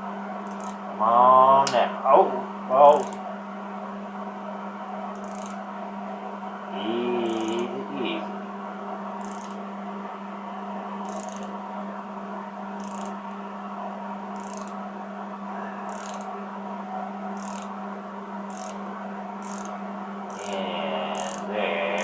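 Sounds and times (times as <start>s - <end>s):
steady electrical hum: 0.0s - 22.0s.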